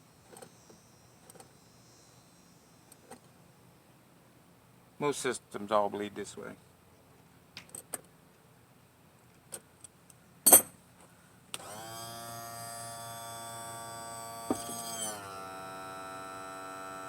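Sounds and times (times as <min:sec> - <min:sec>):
electric pump motor humming: 0:11.6 - 0:17.0.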